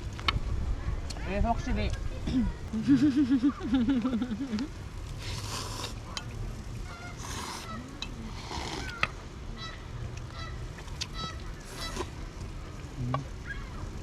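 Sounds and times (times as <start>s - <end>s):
hissy rushes: 5.0s - 6.1s, 7.2s - 9.0s
geese honking: 6.8s - 7.9s, 8.9s - 12.1s.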